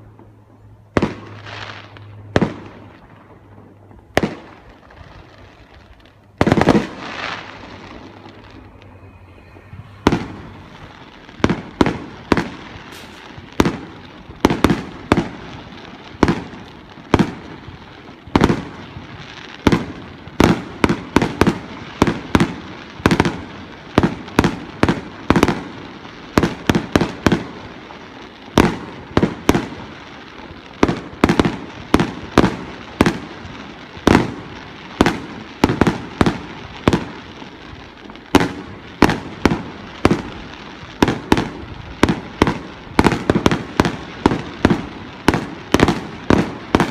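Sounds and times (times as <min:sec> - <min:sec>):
fireworks shells bursting: 0:06.1 - 0:17.7.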